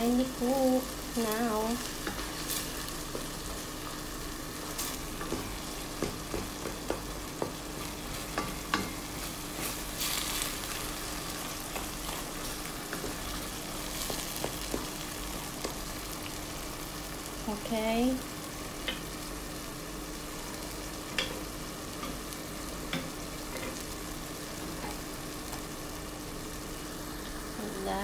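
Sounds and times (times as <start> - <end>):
vegetables sizzling in oil: 0.0 - 28.0
spatula tapping and scraping pot: 5.2 - 9.7, 12.9 - 15.9.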